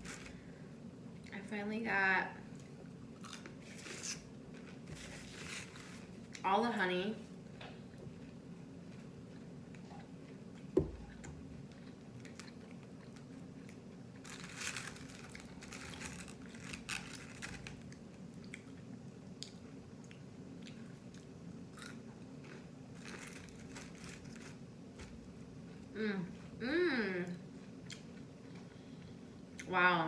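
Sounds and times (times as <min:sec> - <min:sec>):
chewing crunchy fried food: 0:02.5 - 0:04.9, 0:07.9 - 0:24.6, 0:27.4 - 0:29.7.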